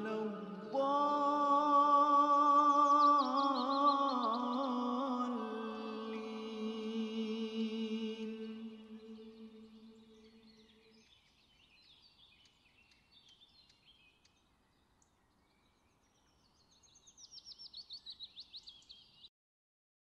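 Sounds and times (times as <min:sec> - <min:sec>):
birds chirping: 0:00.0 - 0:19.3.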